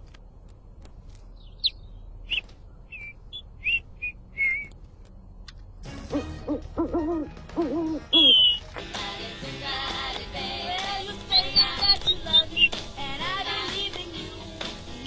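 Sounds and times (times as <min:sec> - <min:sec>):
bird chirps and whistles: 0:01.4 - 0:04.7, 0:08.1 - 0:08.7, 0:11.3 - 0:12.8
low owl-like hoots: 0:06.1 - 0:08.6.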